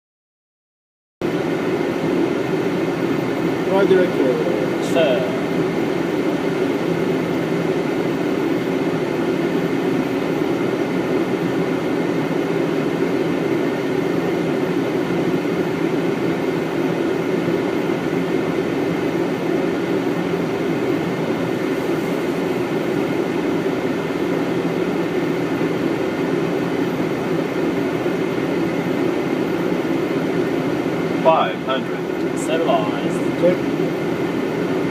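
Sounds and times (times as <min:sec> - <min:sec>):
airflow and air conditioning rush: 0:01.2 - 0:34.9
low hum: 0:03.5 - 0:07.8.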